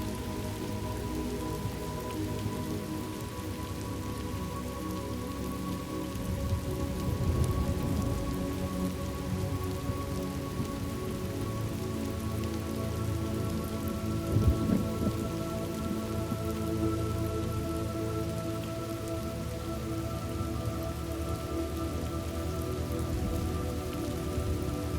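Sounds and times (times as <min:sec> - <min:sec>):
steady rain: 0:00.0 - 0:24.9
rolling thunder: 0:14.3 - 0:15.2.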